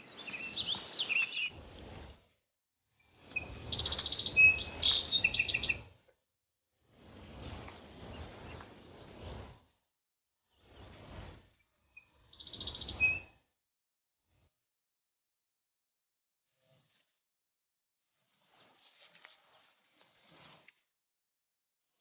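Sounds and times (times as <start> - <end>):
birds chirping and trilling: 0.0 - 1.6, 3.1 - 5.9, 11.8 - 13.4.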